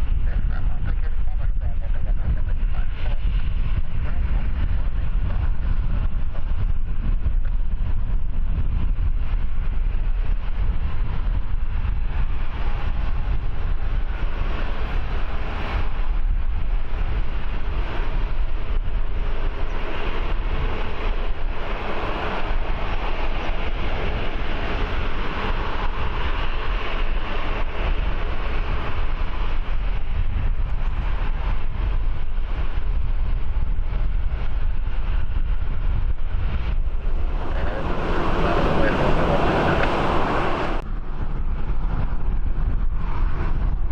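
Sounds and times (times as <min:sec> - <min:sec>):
aircraft jet engine passing: 0:00.0 - 0:06.3, 0:17.2 - 0:30.2, 0:33.8 - 0:43.7
wind buffeting microphone: 0:00.0 - 0:43.9.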